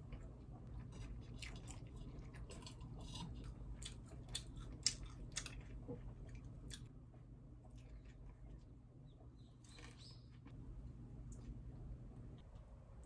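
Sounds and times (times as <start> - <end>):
person chewing: 0.0 - 6.9.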